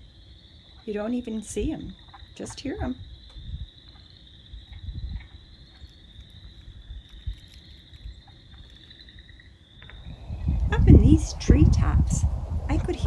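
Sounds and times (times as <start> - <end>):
frogs peeping in chorus: 0.0 - 11.6
low rumble: 9.8 - 13.0.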